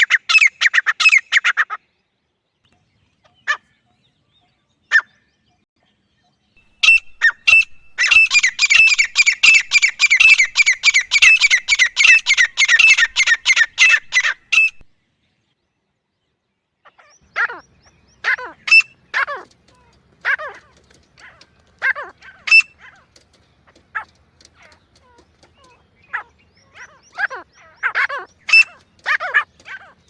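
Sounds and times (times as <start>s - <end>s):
francolin calling: 6.7s - 14.9s, 25.5s - 30.0s.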